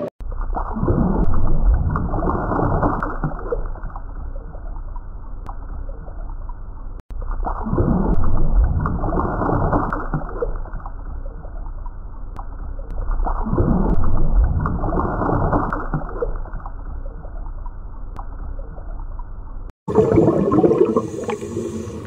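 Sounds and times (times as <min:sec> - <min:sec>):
muffled underwater bubbling: 0:00.0 - 0:04.9, 0:12.9 - 0:17.7, 0:19.9 - 0:22.0.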